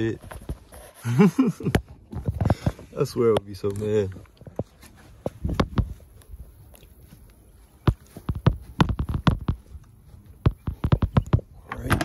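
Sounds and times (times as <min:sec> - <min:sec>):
car battery knocks and clunks: 0:10.8 - 0:12.0.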